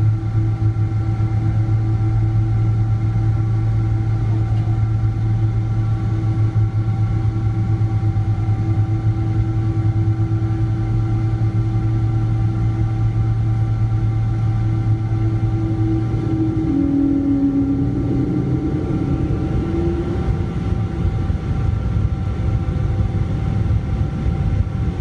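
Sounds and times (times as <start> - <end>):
aircraft cabin drone: 0.0 - 25.0
engine whining tones: 12.8 - 23.9.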